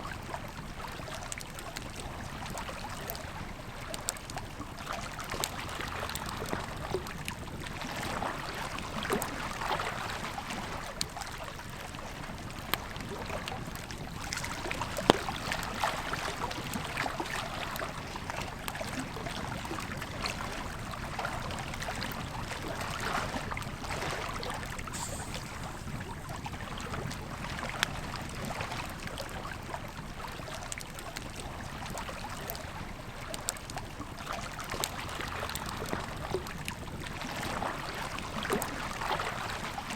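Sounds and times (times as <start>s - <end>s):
campfire crackling and popping: 24.6s - 28.5s.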